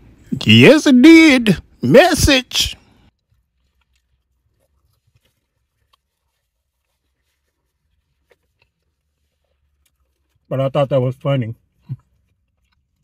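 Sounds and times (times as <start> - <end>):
faint chewing: 2.8 - 13.0.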